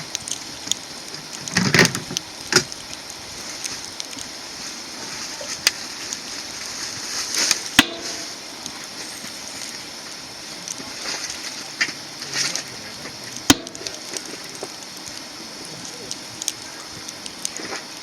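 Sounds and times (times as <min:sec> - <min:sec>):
fire popping and snapping: 0:00.0 - 0:18.0
wood fire crackling: 0:00.0 - 0:18.0
faint distant conversation: 0:10.4 - 0:17.8.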